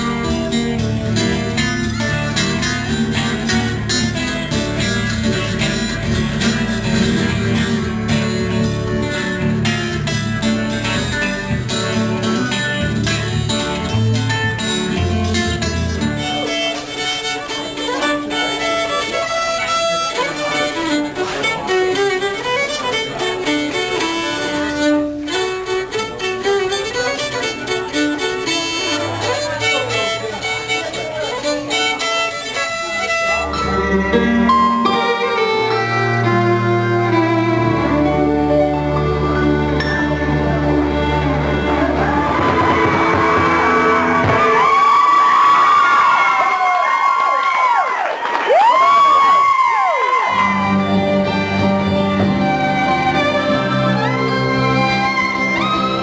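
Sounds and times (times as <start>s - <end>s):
low bass notes: 0.0s - 16.5s, 33.1s - 45.1s, 50.3s - 56.0s
fiddle playing sliding melody: 0.0s - 46.6s, 50.2s - 56.0s
guitar: 0.0s - 56.0s.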